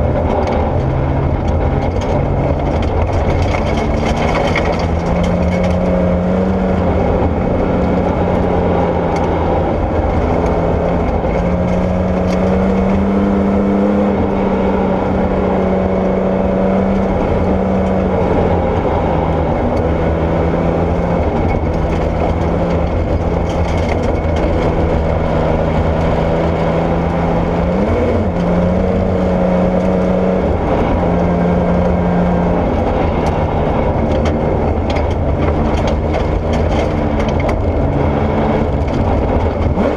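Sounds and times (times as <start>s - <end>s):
rally car engine running hard: 0.0s - 39.9s.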